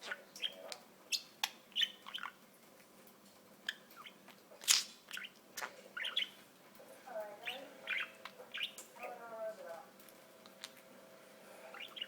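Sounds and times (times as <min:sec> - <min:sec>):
budgerigar squeaky chirps: 0:00.0 - 0:02.4, 0:06.0 - 0:06.4, 0:07.5 - 0:08.8.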